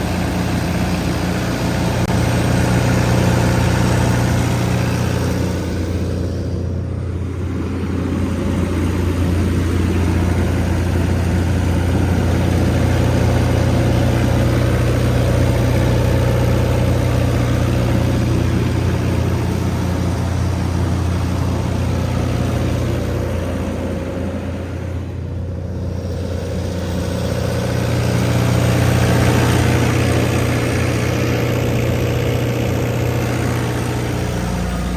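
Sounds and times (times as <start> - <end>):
diesel generator humming: 0.0 - 34.9
fan and exhaust hiss: 0.0 - 34.9.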